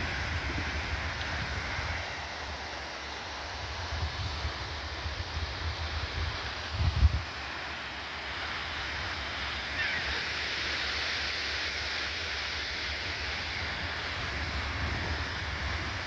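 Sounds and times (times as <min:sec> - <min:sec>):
wind buffeting microphone: 0:00.0 - 0:02.6, 0:03.5 - 0:07.4, 0:13.2 - 0:16.0
surf rushing on beach: 0:00.0 - 0:16.0.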